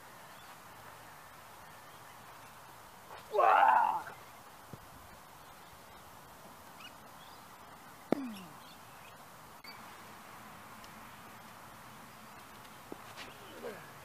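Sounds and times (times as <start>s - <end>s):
steady hiss: 0.0s - 14.0s
faint bird chirps: 6.7s - 9.9s.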